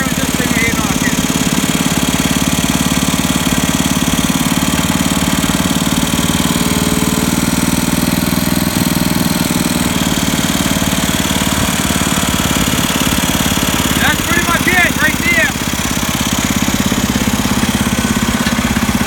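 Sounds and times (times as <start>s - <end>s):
tractor engine running with knock: 0.0s - 19.0s.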